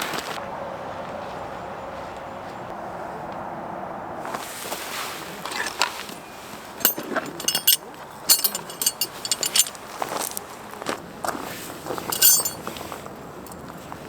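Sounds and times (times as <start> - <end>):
metallic clinks: 6.8 - 10.3, 12.1 - 12.7.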